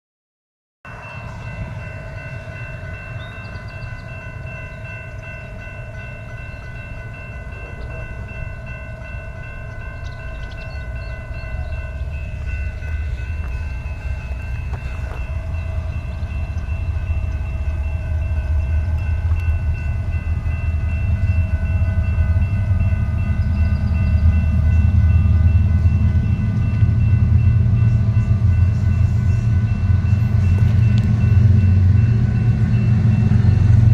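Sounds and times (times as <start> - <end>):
diesel locomotive rumble: 0.9 - 33.9
steady high-pitched tones: 0.9 - 33.9.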